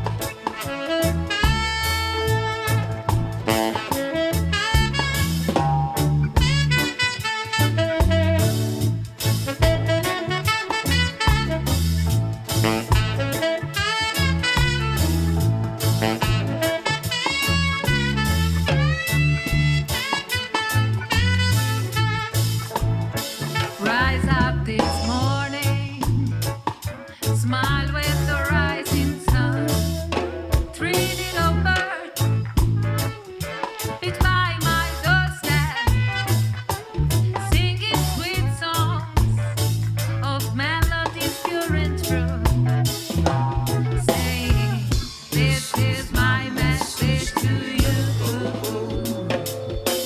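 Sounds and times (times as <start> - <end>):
bass guitar: 0.0 - 50.0
drum kit: 0.0 - 50.0
live reggae band: 0.0 - 50.0.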